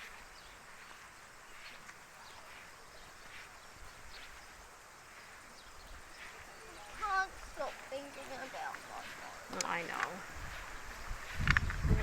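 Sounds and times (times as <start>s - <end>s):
faint bird chirps: 0.0s - 9.5s
low wind rumble: 2.9s - 12.0s.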